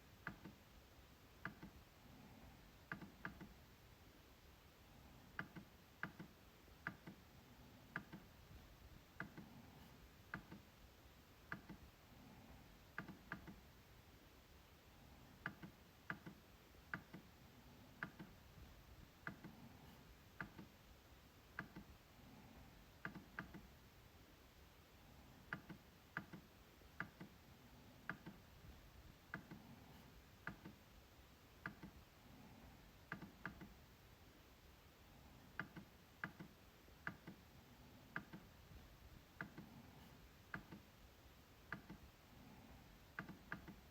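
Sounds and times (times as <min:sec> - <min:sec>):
trackpad clicks: 0:05.4 - 0:07.2, 0:07.9 - 0:08.4, 0:10.3 - 0:10.7, 0:11.5 - 0:11.9, 0:12.9 - 0:13.6, 0:15.4 - 0:17.3, 0:18.0 - 0:18.4, 0:21.5 - 0:21.9, 0:23.0 - 0:23.7, 0:25.5 - 0:27.4, 0:31.6 - 0:32.0, 0:35.6 - 0:37.4, 0:41.7 - 0:42.0, 0:43.2 - 0:43.8.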